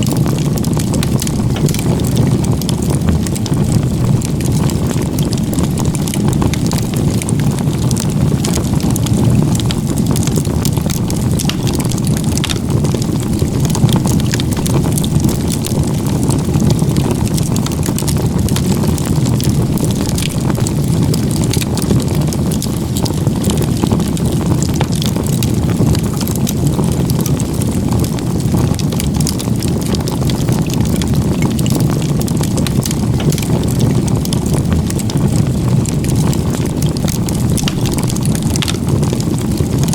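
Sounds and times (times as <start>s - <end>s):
low fire rumble: 0.0s - 39.9s
wood fire crackling and popping: 0.0s - 39.9s.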